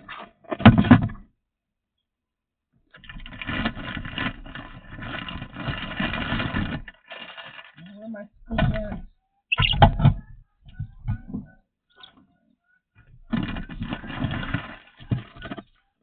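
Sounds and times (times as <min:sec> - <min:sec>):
clatter: 0:02.9 - 0:07.8, 0:13.2 - 0:15.8.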